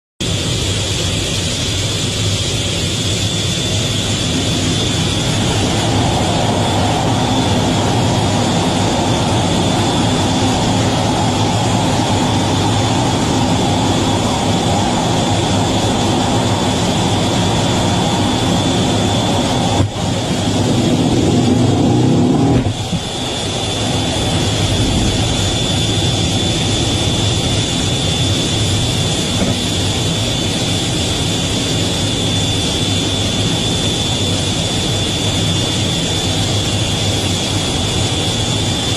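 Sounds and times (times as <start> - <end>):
jet engines rushing and whining: 0.2 - 38.9.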